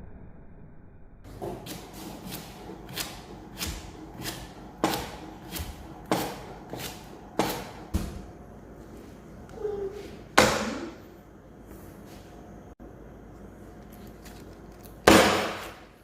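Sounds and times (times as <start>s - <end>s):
knife chopping on cutting board: 1.3s - 8.3s.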